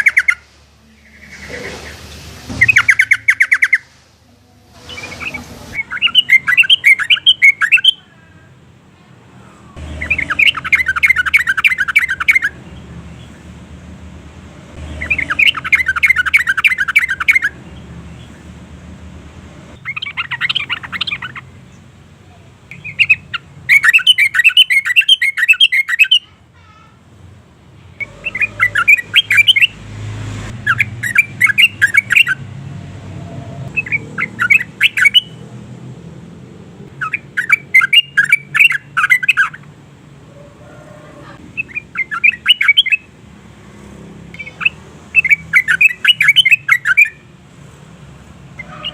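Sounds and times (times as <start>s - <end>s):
bulbul singing: 0.0s - 13.8s, 14.6s - 18.7s, 19.8s - 26.4s, 27.9s - 32.8s, 33.6s - 36.0s, 36.8s - 43.2s, 44.2s - 47.4s.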